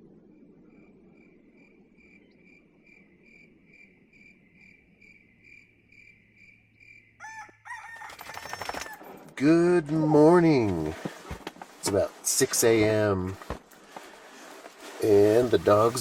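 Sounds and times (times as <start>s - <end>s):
insect call repeated high note: 0.3s - 7.5s.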